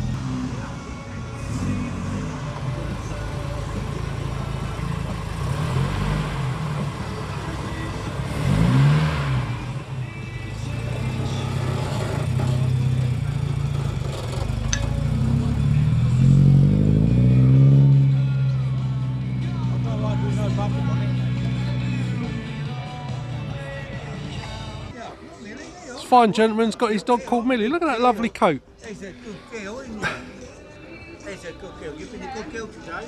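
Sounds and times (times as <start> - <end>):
car engine revving under load: 0.0 - 24.9.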